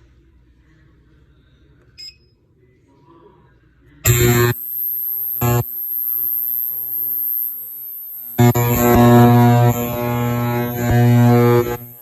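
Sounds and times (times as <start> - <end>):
high-pitched whine: 4.0 - 12.0
machine buzzing hum: 4.0 - 12.0.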